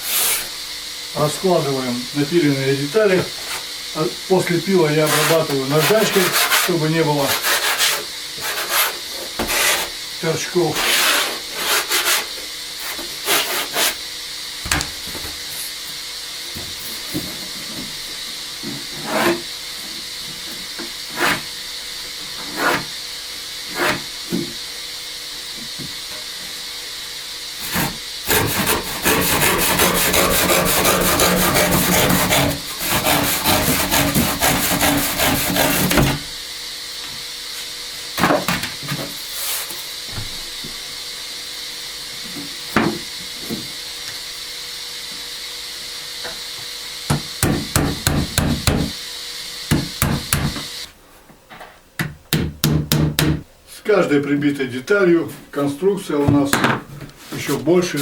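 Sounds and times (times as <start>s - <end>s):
sandpaper rubbing on chipboard: 0.0s - 0.5s, 5.0s - 10.0s, 10.7s - 14.0s, 22.4s - 22.9s, 23.7s - 24.0s, 27.6s - 36.2s.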